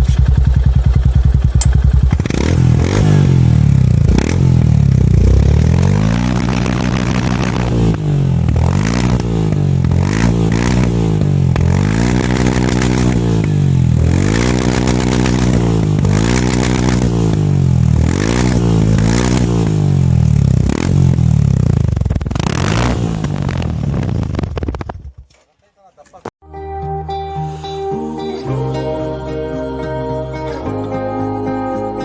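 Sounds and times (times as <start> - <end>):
motorcycle engine revving: 0.0 - 25.3.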